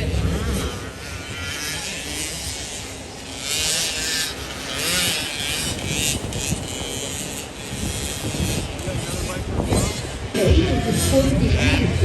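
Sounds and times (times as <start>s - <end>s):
small motorcycle engine revving: 0.0s - 12.0s.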